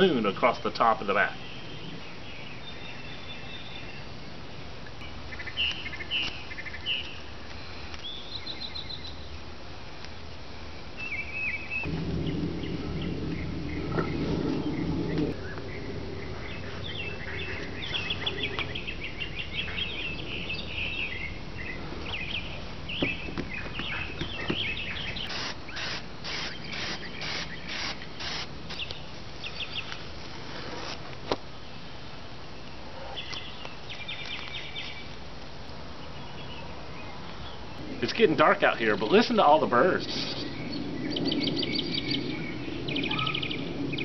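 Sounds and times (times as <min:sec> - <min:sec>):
birds chirping and calling: 0:11.0 - 0:30.0, 0:36.0 - 0:44.0.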